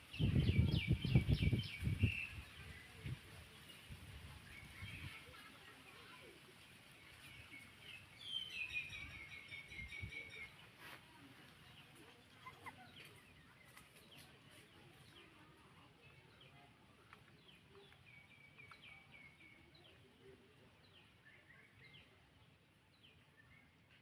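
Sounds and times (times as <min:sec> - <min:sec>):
faint background noise: 0:00.0 - 0:24.0
high chirping calls: 0:07.5 - 0:10.8.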